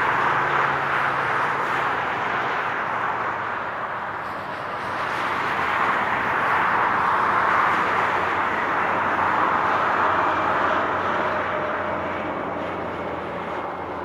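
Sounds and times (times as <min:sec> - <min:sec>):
highway traffic rushing: 0:00.0 - 0:14.0.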